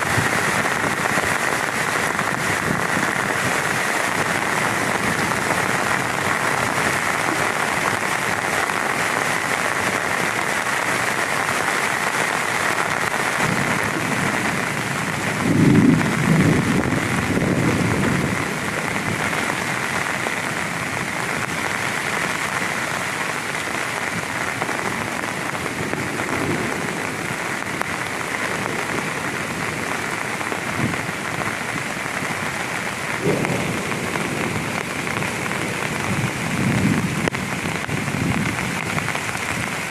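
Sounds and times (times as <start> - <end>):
thunder rumbling: 0.0 - 10.3, 11.9 - 22.6, 32.4 - 39.9
heavy rain falling: 0.0 - 39.9.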